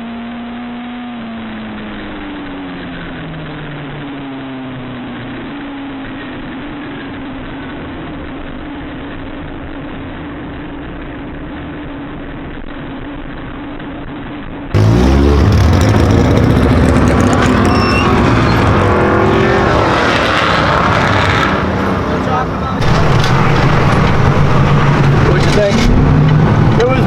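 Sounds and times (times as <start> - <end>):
race car engines passing: 14.8 - 27.0.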